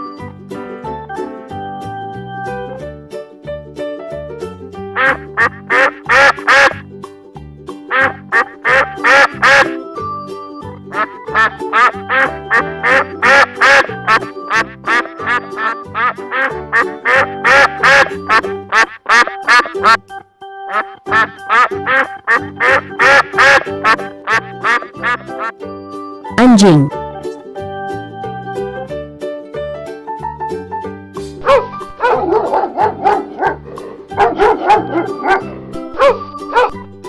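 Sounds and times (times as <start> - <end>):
light music track: 0.0 - 37.0
duck quacking: 5.0 - 6.8, 7.9 - 9.8, 10.9 - 20.0, 20.7 - 25.5.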